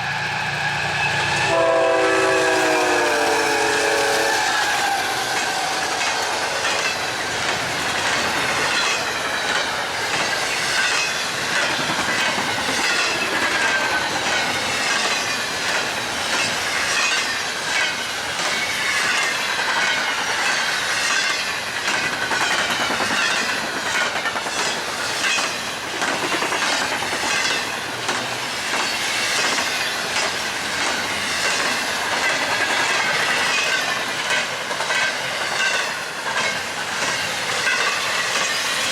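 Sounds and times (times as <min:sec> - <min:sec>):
train wheels rushing on rail: 0:00.0 - 0:38.9
high wavering wheel squeal: 0:00.1 - 0:07.0
wheels clickety-clack: 0:05.3 - 0:38.9.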